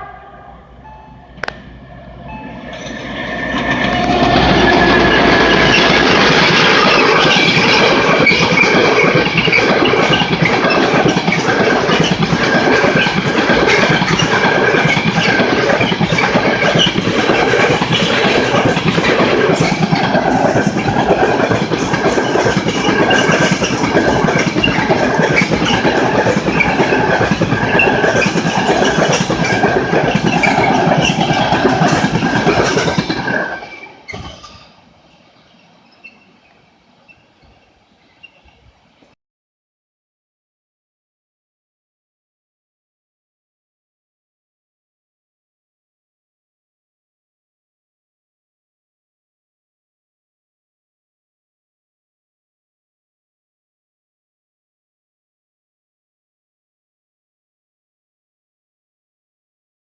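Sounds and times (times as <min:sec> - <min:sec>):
train wheels clattering on rails: 0:01.3 - 0:34.8
high wheel squeal: 0:02.0 - 0:08.8, 0:14.0 - 0:34.8.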